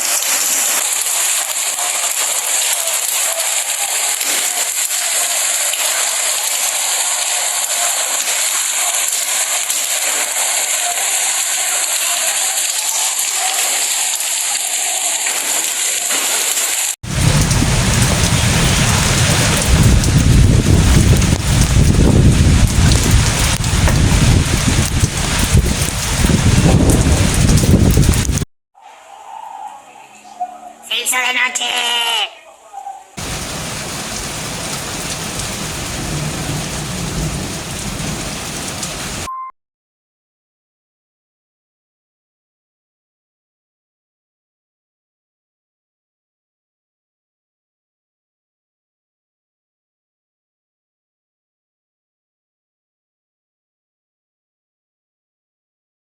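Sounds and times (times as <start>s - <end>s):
heavy rain and hail: 0.0s - 28.4s, 33.2s - 39.3s
deep rumble: 17.1s - 28.4s
short beep: 39.3s - 39.5s.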